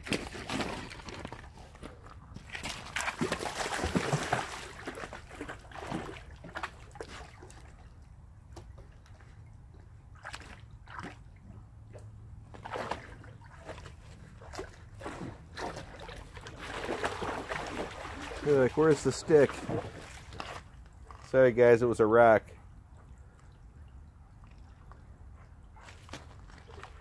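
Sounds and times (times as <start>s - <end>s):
dog splashing in water: 0.0s - 8.0s, 10.1s - 11.3s, 11.9s - 21.2s, 25.7s - 27.0s.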